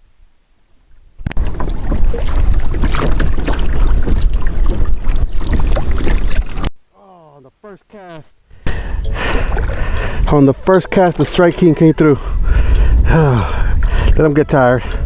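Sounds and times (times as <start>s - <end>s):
wind buffeting microphone: 1.1s - 6.7s, 8.6s - 15.0s
water sloshing: 1.2s - 6.7s, 8.6s - 15.0s.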